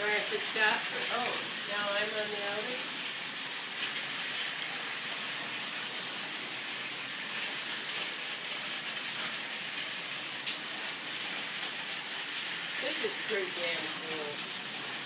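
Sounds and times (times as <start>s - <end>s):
high-pitched whine: 0.0s - 15.0s
toy trains whirring: 0.0s - 15.0s.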